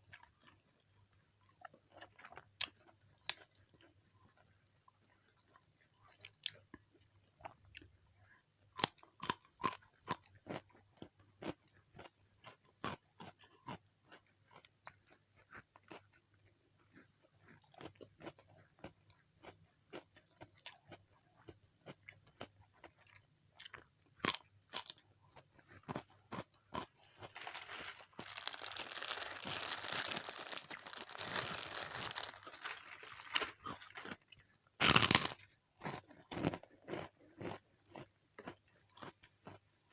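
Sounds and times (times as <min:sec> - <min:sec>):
crunching bites and chewing: 0:01.5 - 0:04.5, 0:08.8 - 0:16.2, 0:16.8 - 0:39.6.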